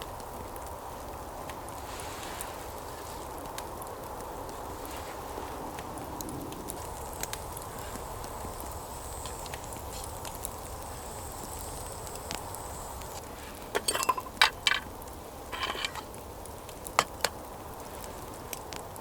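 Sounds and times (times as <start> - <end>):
steady background hiss: 0.0 - 19.0
sharp clicks and light clinks: 13.8 - 14.9.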